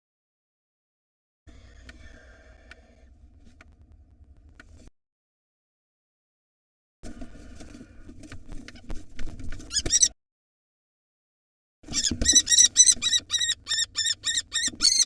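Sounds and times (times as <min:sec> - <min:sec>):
kestrel shrill repeated calls: 0:09.7 - 0:10.1, 0:11.9 - 0:15.0.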